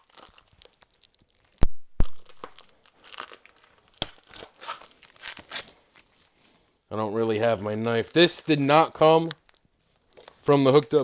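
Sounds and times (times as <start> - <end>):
packing tape peeling and tearing: 0.0 - 6.6.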